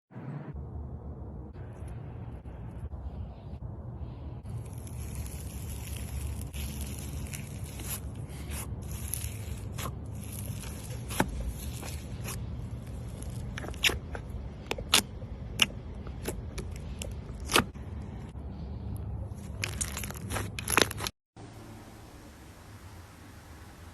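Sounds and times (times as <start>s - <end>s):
slime crackling and popping: 4.6s - 17.6s, 19.6s - 21.1s.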